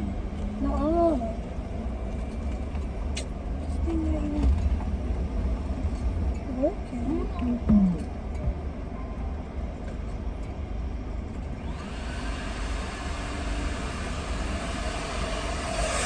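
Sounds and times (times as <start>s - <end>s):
car vacuum motor running: 11.6s - 16.0s.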